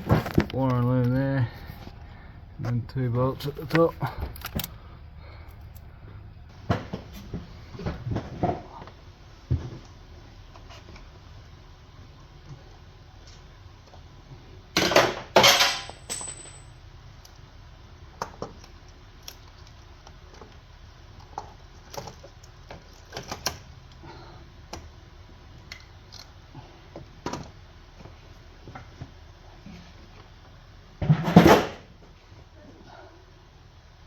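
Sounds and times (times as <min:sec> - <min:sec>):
metal tools clinking: 0:15.4 - 0:16.8.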